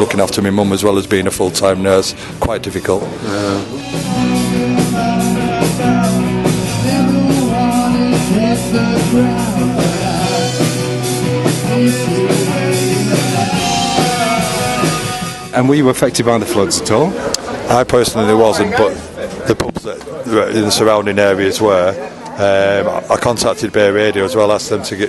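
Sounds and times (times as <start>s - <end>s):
amplified instruments: 0.9s - 17.8s
person singing: 3.2s - 15.5s
steady drum beat: 3.5s - 16.2s.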